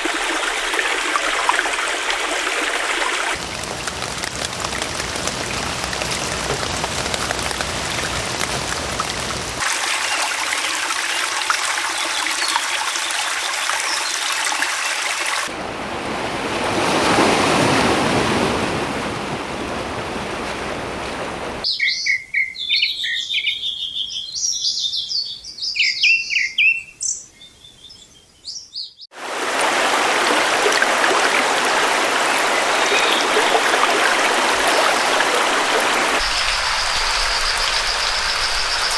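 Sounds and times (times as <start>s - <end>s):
running water rushing: 0.0s - 15.6s, 29.1s - 38.9s
birds chirping and singing: 21.7s - 29.1s.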